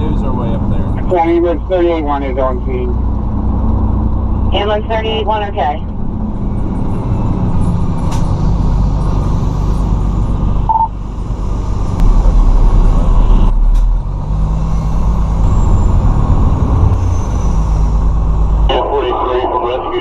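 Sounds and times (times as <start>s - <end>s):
fire truck engine rumbling: 0.0s - 20.0s
short beep: 10.7s - 10.9s.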